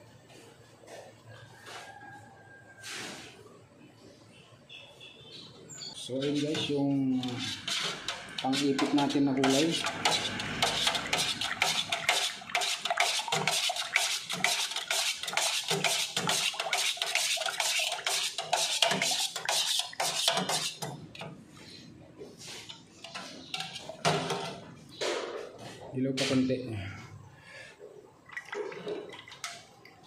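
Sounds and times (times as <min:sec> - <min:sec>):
stirrer clinking and scraping: 0:06.0 - 0:21.3, 0:22.4 - 0:24.6.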